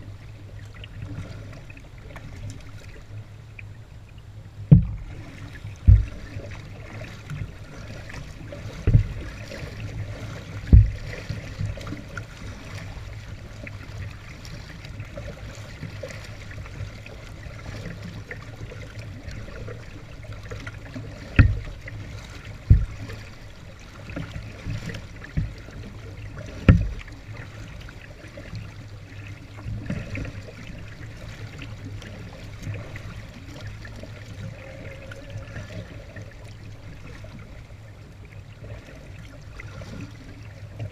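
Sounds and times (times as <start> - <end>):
water dripping off paddle: 0.5 - 37.7
sharp low knocks: 4.6 - 5.2, 5.8 - 6.4, 8.8 - 9.3, 10.6 - 11.2, 21.3 - 21.7, 22.6 - 23.2.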